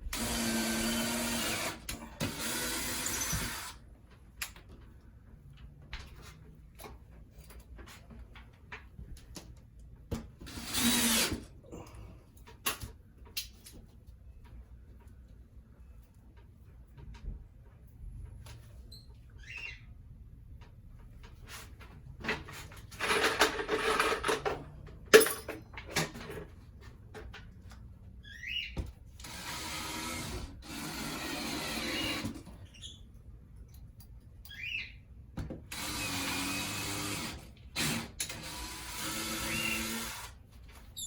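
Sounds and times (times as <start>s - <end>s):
hand-held power tool running: 0.1s - 3.8s, 10.5s - 11.4s, 29.2s - 32.4s, 35.7s - 40.4s.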